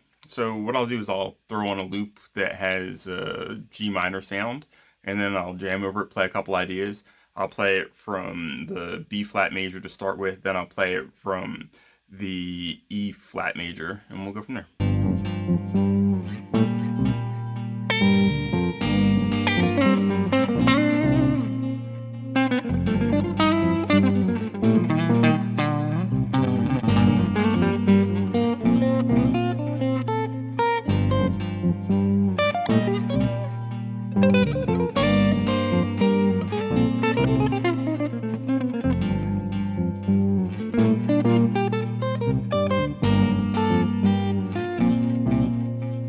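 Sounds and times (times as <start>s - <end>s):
backing track low chords: 14.8s - 46.0s
electric guitar solo lines: 15.0s - 46.0s.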